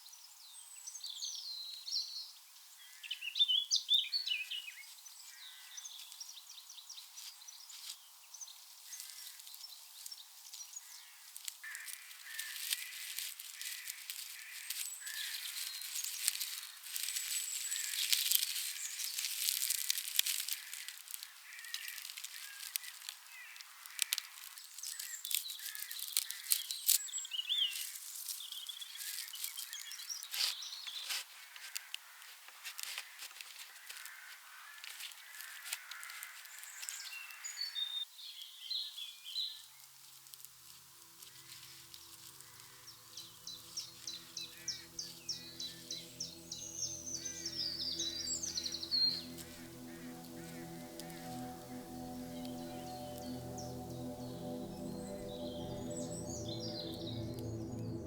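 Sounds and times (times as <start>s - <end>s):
small birds chirping: 41.3s - 58.0s.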